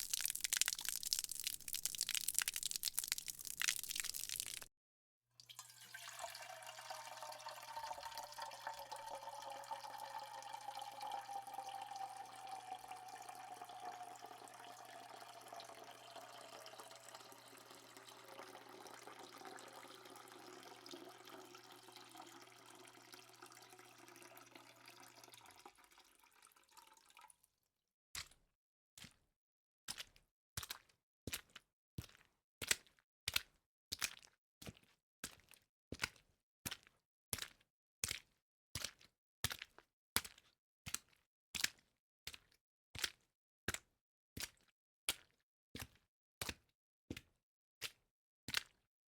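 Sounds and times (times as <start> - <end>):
tap running into sink: 5.5 - 26.2.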